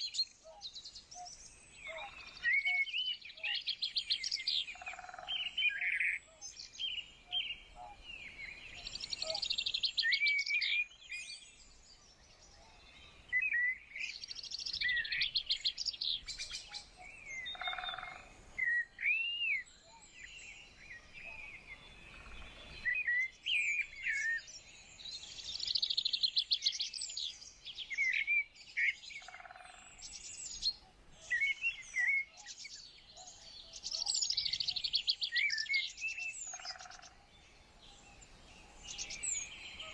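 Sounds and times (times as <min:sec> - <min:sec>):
songbirds singing and chirping: 0:00.0 - 0:39.9
lower-pitched bird call: 0:16.7 - 0:19.6.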